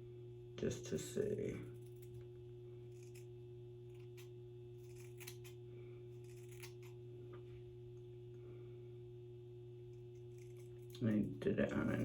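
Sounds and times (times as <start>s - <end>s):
steady low hum: 0.0s - 12.0s
scissors snipping hair: 4.0s - 5.6s, 6.2s - 7.0s.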